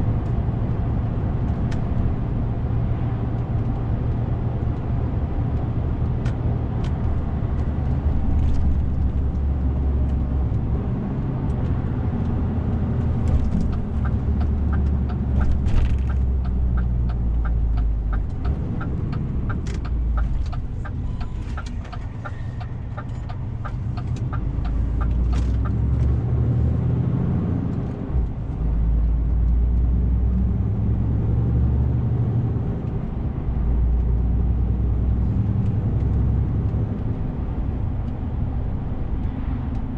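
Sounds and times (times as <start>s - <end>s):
turn signal ticking: 11.4s - 31.2s.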